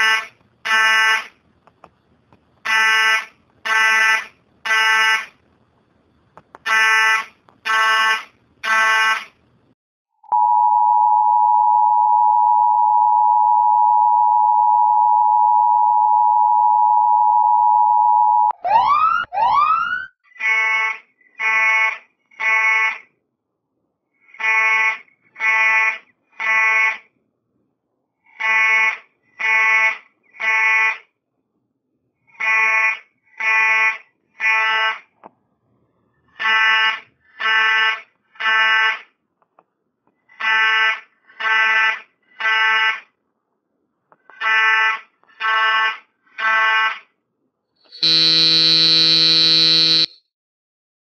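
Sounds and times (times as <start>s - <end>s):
steady buzzing alarm tone: 36.4s - 39.1s, 44.5s - 47.0s, 47.9s - 50.3s
fire alarm buzzing beeps: 47.9s - 50.2s.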